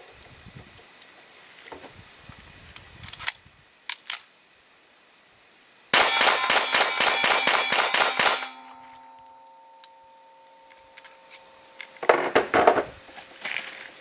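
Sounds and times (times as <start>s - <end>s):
pistol shots: 6.0s - 8.8s
metallic ringing: 6.0s - 12.5s.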